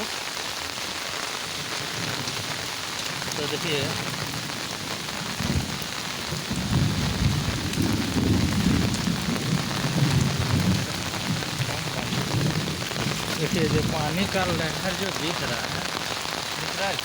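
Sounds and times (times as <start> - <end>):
steady rain falling: 0.0 - 17.0
low uneven rumble: 6.6 - 16.7.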